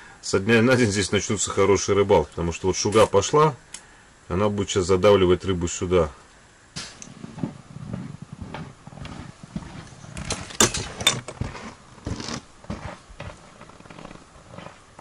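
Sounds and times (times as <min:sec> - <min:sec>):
rustling: 0:06.8 - 0:15.0.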